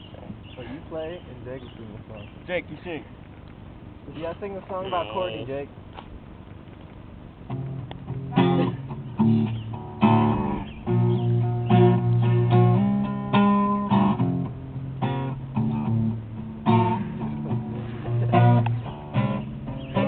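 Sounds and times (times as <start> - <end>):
guitar strumming: 7.5 - 20.0.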